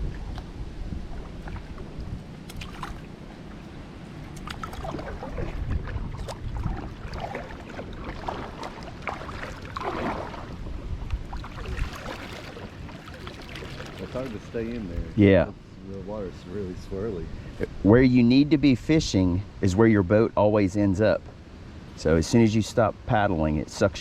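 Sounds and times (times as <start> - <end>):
paddle strokes splashing water: 0.0 - 15.2
wind rumbling on microphone: 0.0 - 20.3.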